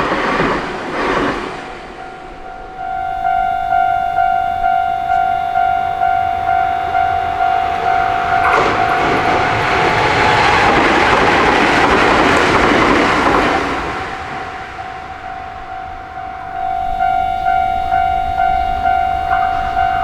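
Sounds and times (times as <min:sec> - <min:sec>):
electric train rushing past: 0:00.0 - 0:20.0
level crossing bell dinging: 0:02.0 - 0:10.6, 0:15.7 - 0:20.0.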